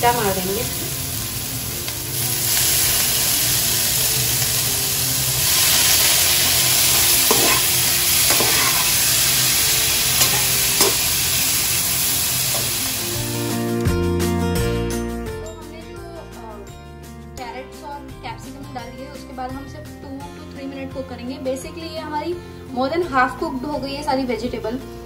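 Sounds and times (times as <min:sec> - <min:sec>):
vegetables sizzling in a pan: 0:00.0 - 0:13.6.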